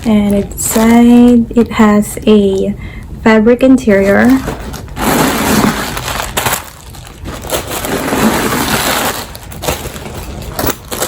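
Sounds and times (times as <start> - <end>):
canvas bag rustling: 4.2 - 11.0.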